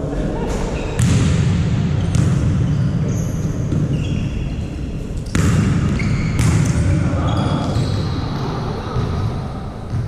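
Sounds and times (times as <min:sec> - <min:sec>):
low hum of hall: 0:00.0 - 0:10.0
sneakers squeaking on floor: 0:00.5 - 0:01.3, 0:02.0 - 0:09.3.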